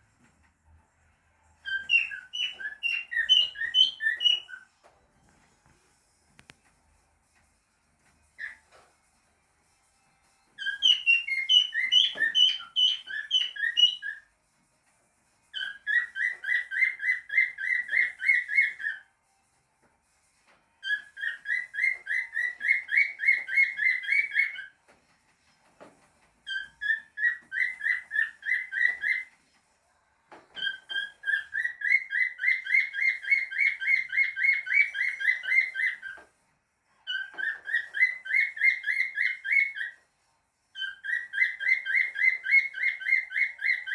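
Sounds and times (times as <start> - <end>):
cockatiel whistling: 1.6 - 4.7, 8.4 - 8.8, 10.6 - 14.3, 15.5 - 19.1, 20.8 - 24.7, 26.4 - 29.4, 30.6 - 36.3, 37.0 - 40.0, 40.8 - 43.9.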